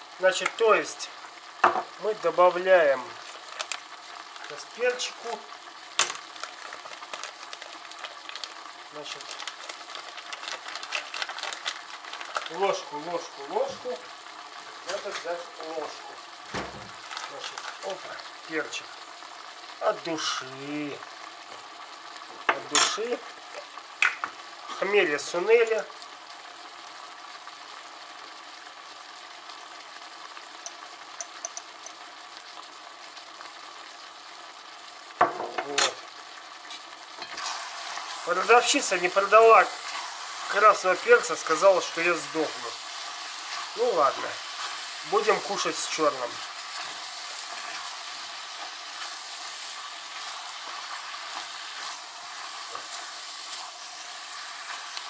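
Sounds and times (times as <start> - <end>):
food sizzling in pot: 0.0 - 55.0
spoon clicking against pot: 30.6 - 32.0.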